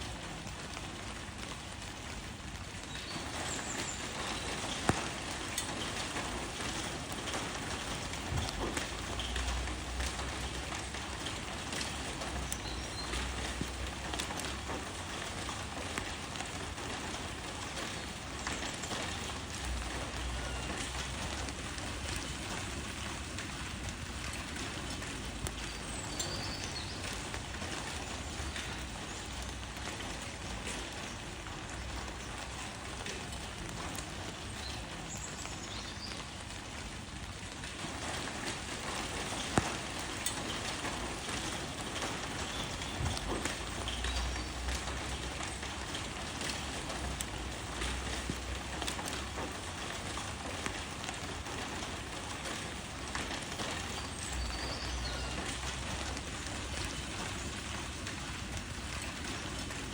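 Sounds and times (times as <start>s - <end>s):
rain pattering on leaves: 0.0s - 59.9s.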